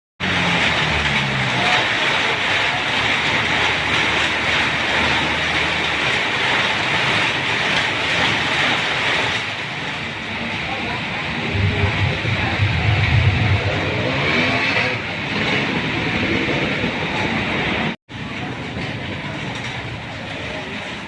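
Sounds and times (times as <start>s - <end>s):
heavy rain pouring: 0.2s - 21.0s
low rumble: 11.2s - 15.3s.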